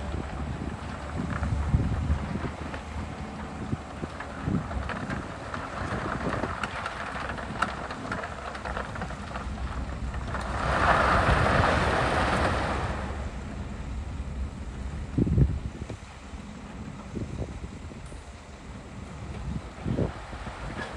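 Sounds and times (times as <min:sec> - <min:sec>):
soil and rocks clattering: 0:00.0 - 0:13.3
heavy diesel machinery running: 0:00.0 - 0:20.9.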